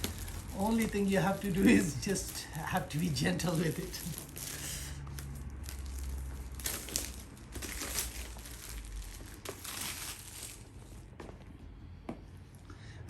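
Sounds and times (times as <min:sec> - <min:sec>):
packaging crinkling and rustling: 0:00.0 - 0:11.2.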